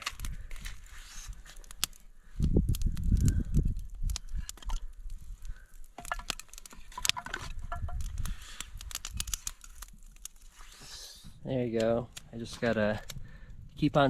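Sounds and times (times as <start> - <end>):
crunching knocks in fire: 0.0 - 10.6
campfire crackling and popping: 0.0 - 14.0.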